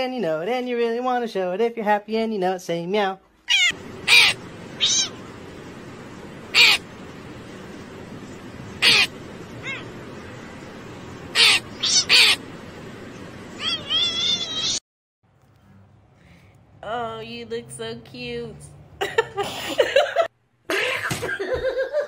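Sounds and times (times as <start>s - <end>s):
crow calling: 3.5s - 5.5s, 6.4s - 7.1s, 8.6s - 14.8s
background hiss: 3.5s - 14.8s.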